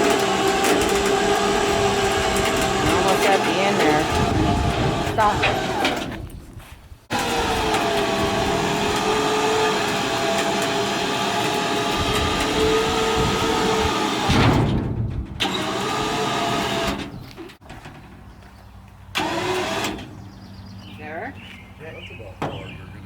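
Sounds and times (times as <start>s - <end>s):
motor whining: 0.0s - 6.1s, 7.1s - 14.4s.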